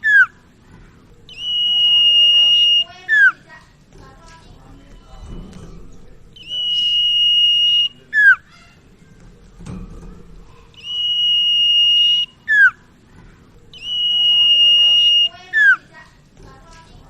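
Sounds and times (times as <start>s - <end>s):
songbird whistling: 0.0s - 0.4s, 1.3s - 3.4s, 6.3s - 8.6s, 10.8s - 12.9s, 13.7s - 15.9s.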